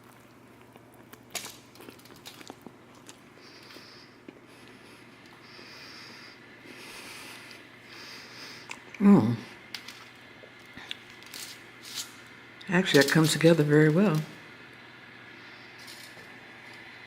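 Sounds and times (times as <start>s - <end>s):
breathing through nose while chewing: 3.1s - 9.0s.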